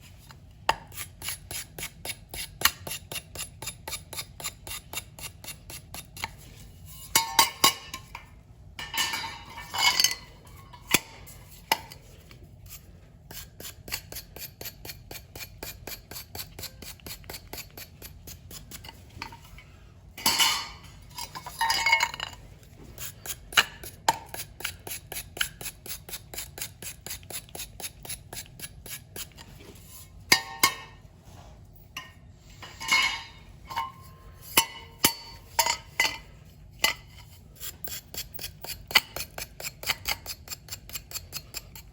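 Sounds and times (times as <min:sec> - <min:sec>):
metal clinking and scraping: 0:06.2 - 0:12.9, 0:18.5 - 0:24.4, 0:29.2 - 0:31.1, 0:31.9 - 0:40.4.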